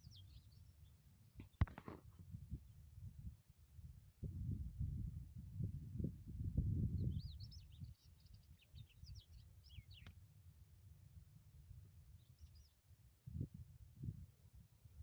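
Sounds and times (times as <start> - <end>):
small birds chirping: 0.0 - 1.8, 6.9 - 10.2, 12.1 - 12.9.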